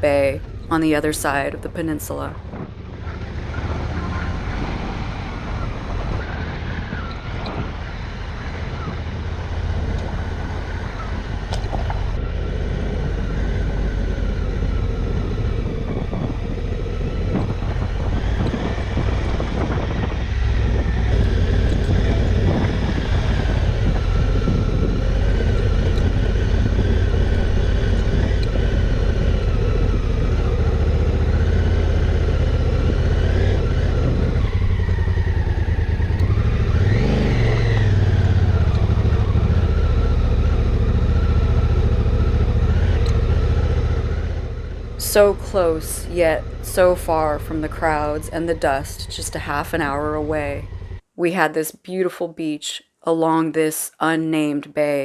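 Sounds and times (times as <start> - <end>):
motorcycle engine running: 0.0 - 51.0
tyre and wind noise: 2.4 - 45.0.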